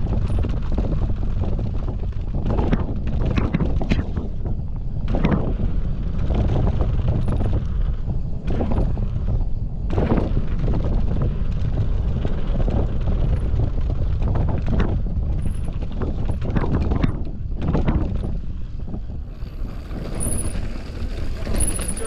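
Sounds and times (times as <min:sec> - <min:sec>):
bike clattering over bumps: 0:00.0 - 0:22.0
wind rushing over microphone: 0:00.0 - 0:22.0
tyres on dirt: 0:05.1 - 0:22.0.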